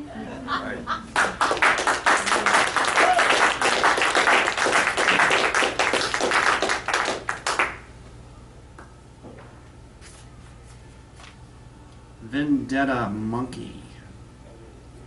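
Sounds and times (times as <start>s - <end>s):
audience applauding: 1.1s - 7.8s.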